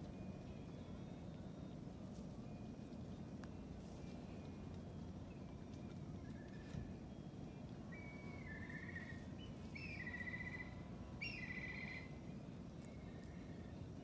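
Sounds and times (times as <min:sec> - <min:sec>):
low outdoor rumble: 0:00.0 - 0:14.0
bird trilling: 0:07.9 - 0:12.2.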